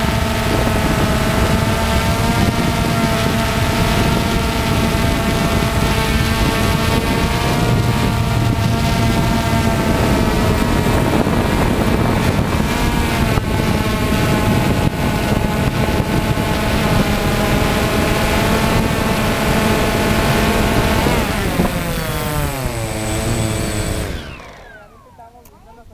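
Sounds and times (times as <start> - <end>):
drone propellers whining: 0.0 - 25.6
low rumble: 4.2 - 17.0.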